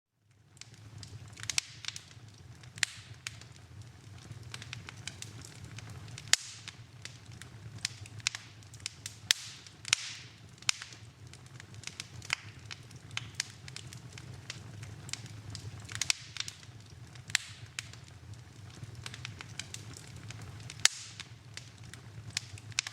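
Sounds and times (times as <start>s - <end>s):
wood fire crackling: 0.1s - 22.9s.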